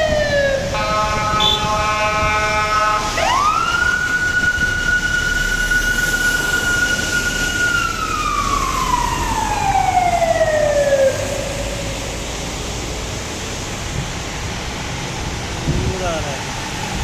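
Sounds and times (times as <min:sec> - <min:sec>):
siren wailing: 0:00.0 - 0:12.4
steady rain: 0:02.1 - 0:17.0.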